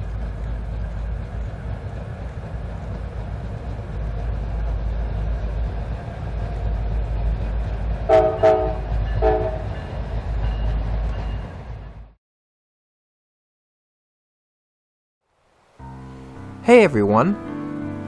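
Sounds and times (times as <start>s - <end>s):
diesel locomotive rumbling: 0.0s - 12.2s
locomotive air horn blasts: 8.1s - 9.8s.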